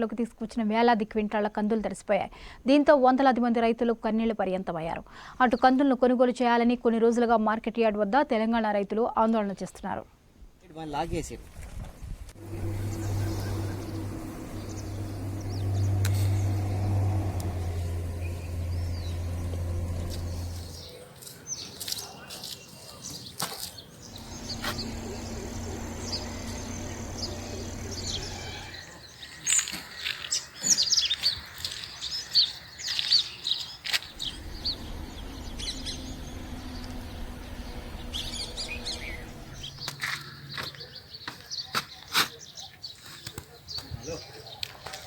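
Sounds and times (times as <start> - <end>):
low steady hum: 12.4 - 20.8, 24.1 - 28.8, 34.2 - 39.8
small birds chirping: 12.4 - 44.6.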